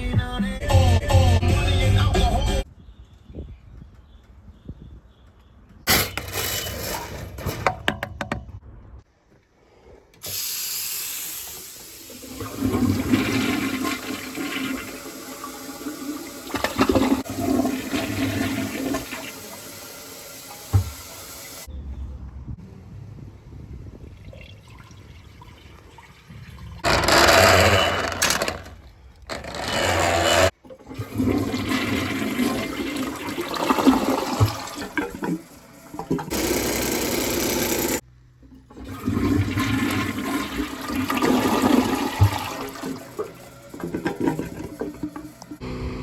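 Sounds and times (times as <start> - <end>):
toilet flushing: 5.9 - 8.0, 10.2 - 21.7, 24.2 - 46.0.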